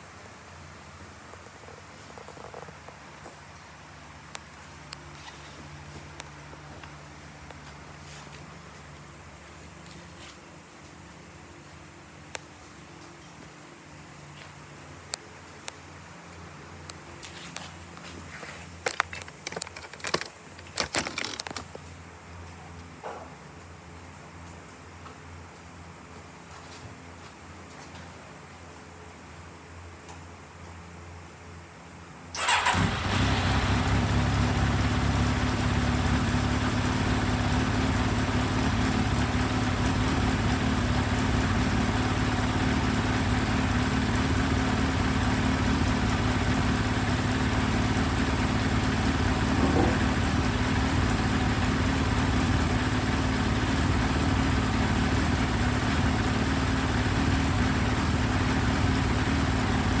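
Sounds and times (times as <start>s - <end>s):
motorcycle engine starter cranking: 32.4s - 35.1s
motorcycle engine idling: 32.4s - 60.0s.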